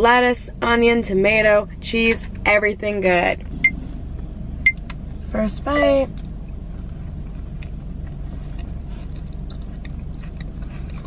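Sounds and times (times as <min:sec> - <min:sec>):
low hum inside a car: 0:00.0 - 0:11.0
person chewing food: 0:06.8 - 0:11.0.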